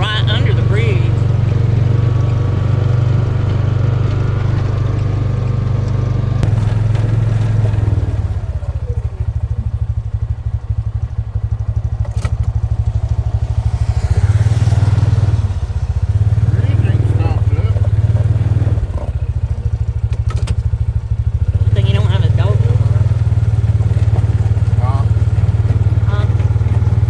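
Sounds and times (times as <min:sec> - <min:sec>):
engine running: 0:00.0 - 0:27.0.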